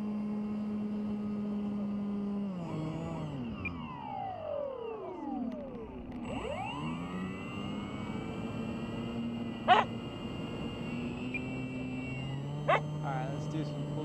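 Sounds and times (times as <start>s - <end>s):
model aircraft motors whining: 0.0s - 14.0s
dog barking: 9.7s - 9.9s, 12.7s - 12.9s.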